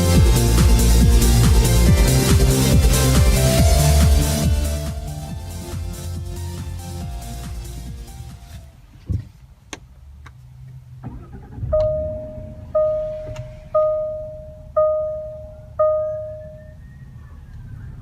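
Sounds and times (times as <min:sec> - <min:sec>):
low rumble: 0:11.0 - 0:18.0
car warning chime: 0:11.5 - 0:17.0.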